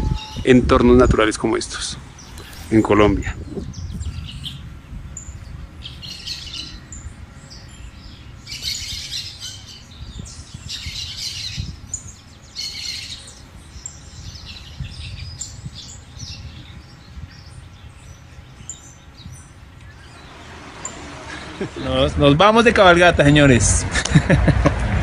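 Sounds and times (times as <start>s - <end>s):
songbirds chirping: 0.0s - 23.8s
low uneven rumble: 13.3s - 25.0s.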